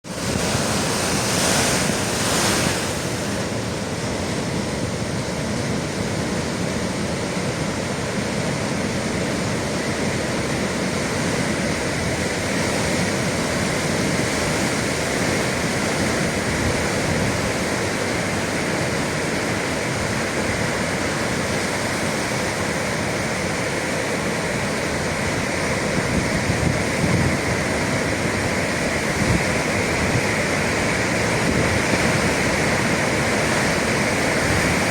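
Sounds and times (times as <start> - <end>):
wind on microphone: 0.0 - 4.2, 25.1 - 34.9
ocean surf waves: 0.0 - 34.9.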